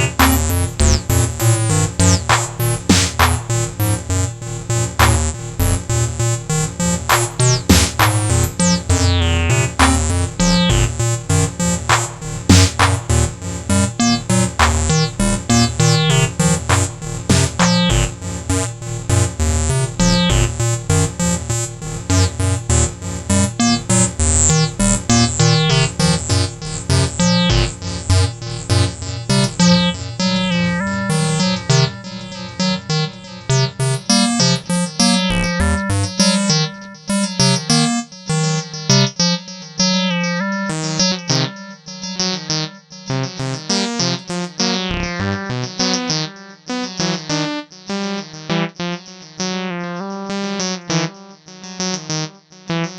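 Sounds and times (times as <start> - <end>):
repeating bass pattern: 0.0 - 37.7, 42.7 - 46.4
fast sequenced synth line: 0.0 - 52.9.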